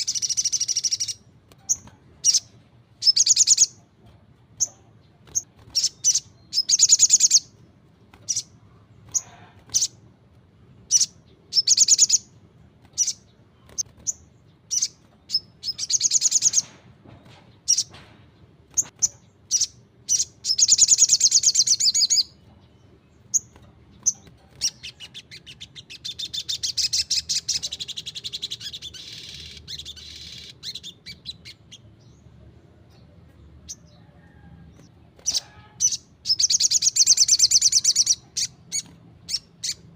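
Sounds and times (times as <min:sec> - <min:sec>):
bird singing buzzy trills: 0:00.0 - 0:03.9, 0:04.6 - 0:10.1, 0:10.7 - 0:16.7, 0:18.6 - 0:39.9.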